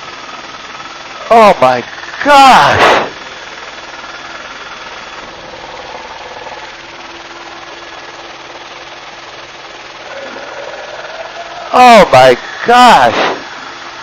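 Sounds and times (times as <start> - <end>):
aircraft engine drone in cabin: 0.0 - 14.0.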